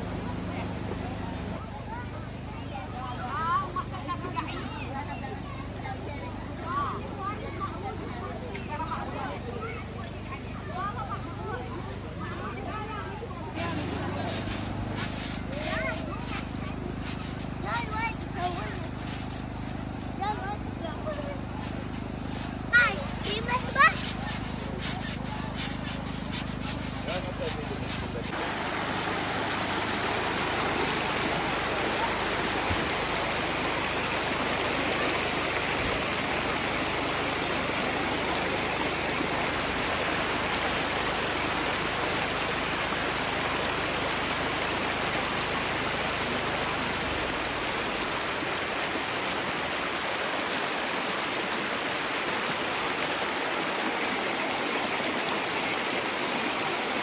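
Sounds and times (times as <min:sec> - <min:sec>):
mountain stream rushing: 0:21.3 - 0:57.0.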